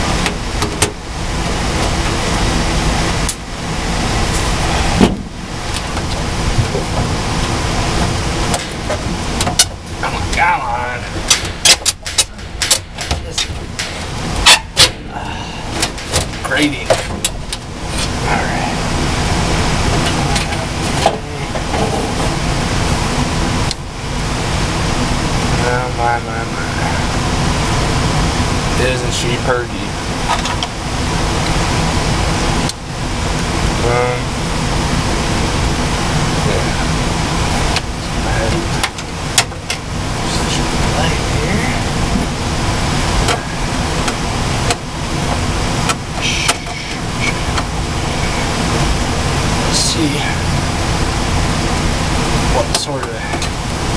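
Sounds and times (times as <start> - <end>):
heat pump running: 0.0 - 53.9
sharp clicks and knocks: 0.2 - 1.0, 8.0 - 10.0, 11.1 - 15.0, 15.7 - 18.2, 30.3 - 30.7.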